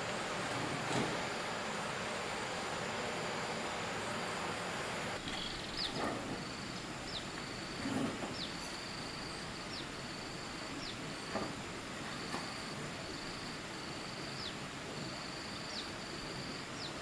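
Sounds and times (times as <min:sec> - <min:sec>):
broad rushing noise: 0:00.0 - 0:08.4.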